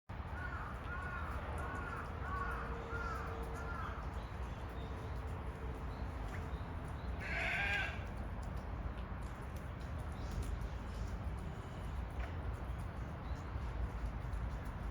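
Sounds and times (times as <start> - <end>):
short arching animal calls: 7.2 - 8.0.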